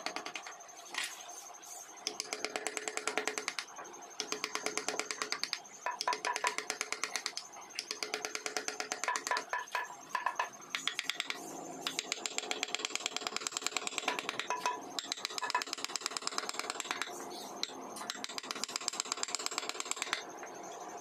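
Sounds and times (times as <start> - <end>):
carving tool tapping wood: 2.1 - 3.6, 4.2 - 17.1, 18.1 - 20.2.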